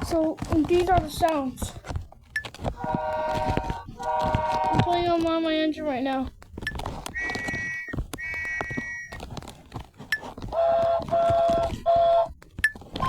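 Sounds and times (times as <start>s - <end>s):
lower horn-like tone: 2.8s - 5.1s, 7.2s - 9.1s
toy train toots: 7.2s - 9.1s, 10.6s - 12.3s.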